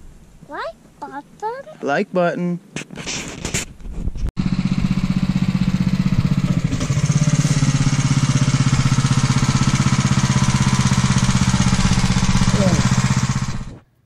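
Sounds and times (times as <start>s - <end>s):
pressure washer engine running: 4.4s - 13.8s.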